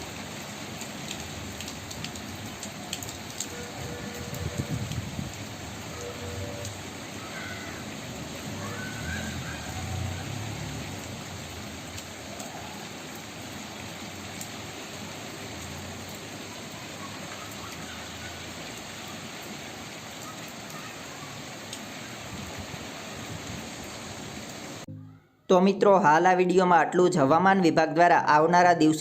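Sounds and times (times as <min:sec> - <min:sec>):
raindrop ticks: 0:00.0 - 0:06.9, 0:10.6 - 0:20.9, 0:21.6 - 0:21.9
steady rain hiss: 0:00.0 - 0:24.9.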